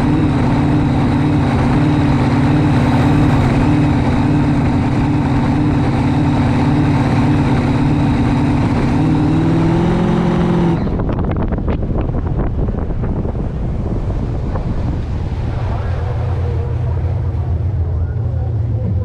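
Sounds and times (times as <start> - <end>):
boat racing engine running hard: 0.0 - 19.0
wind and water rushing: 0.2 - 7.7, 11.3 - 16.6.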